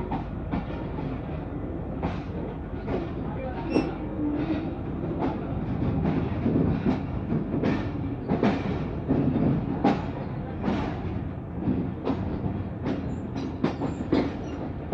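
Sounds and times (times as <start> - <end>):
train rumble: 0.0 - 14.9
train wheels clicking over rail joints: 0.0 - 14.9.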